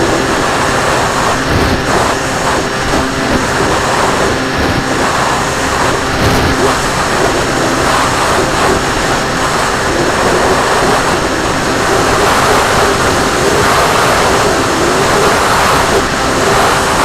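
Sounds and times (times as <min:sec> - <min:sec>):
wind and propeller rush: 0:00.0 - 0:17.0.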